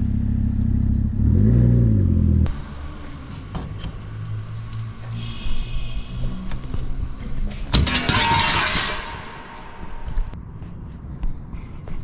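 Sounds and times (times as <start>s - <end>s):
car engine idling and revving: 0.0s - 7.4s.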